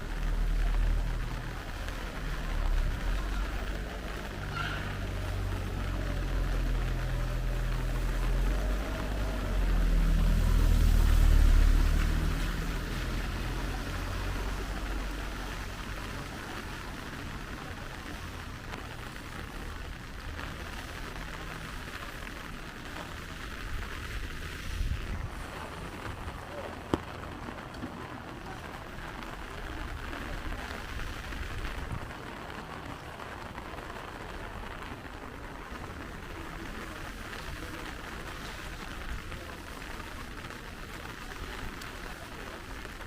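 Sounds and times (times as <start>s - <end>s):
rain hiss: 0.0s - 43.0s
vehicle engine hum passing: 2.5s - 18.4s.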